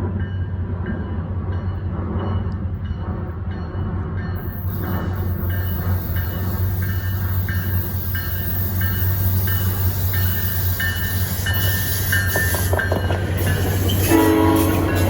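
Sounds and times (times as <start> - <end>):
train rumbling: 0.0 - 15.0
train horn chord: 14.0 - 15.0.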